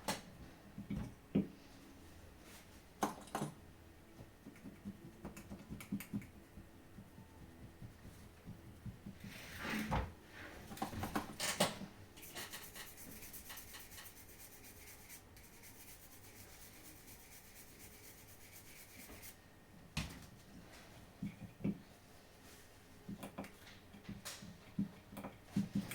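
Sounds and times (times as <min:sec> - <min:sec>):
tools rubbing and scraping: 0:12.2 - 0:19.4.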